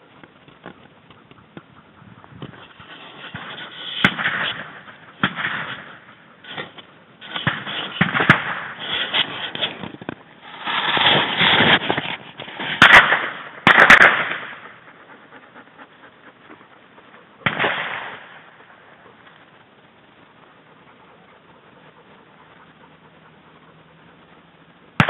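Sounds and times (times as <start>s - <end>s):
crackling pops: 0.0s - 1.7s, 2.3s - 15.1s, 17.4s - 20.6s
shotgun shots: 3.3s - 6.7s, 7.3s - 9.8s, 12.7s - 14.7s, 17.4s - 18.4s.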